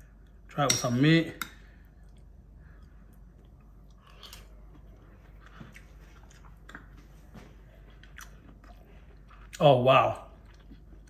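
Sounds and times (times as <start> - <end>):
faint chewing: 1.8 - 9.6.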